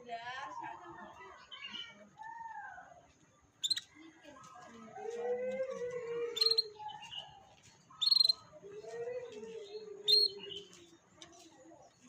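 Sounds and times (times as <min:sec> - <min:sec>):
canary sharp chirps: 0:03.6 - 0:03.9, 0:06.4 - 0:06.8, 0:08.0 - 0:08.5, 0:10.1 - 0:10.4
faint high twittering: 0:03.6 - 0:04.0, 0:06.3 - 0:08.6, 0:10.0 - 0:10.7
drawn-out bird calls: 0:06.3 - 0:06.7, 0:08.0 - 0:08.4.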